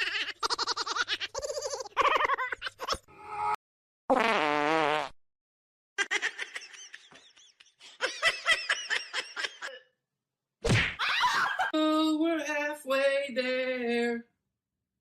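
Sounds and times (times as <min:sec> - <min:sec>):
person laughing: 0:00.0 - 0:03.1, 0:06.0 - 0:09.9.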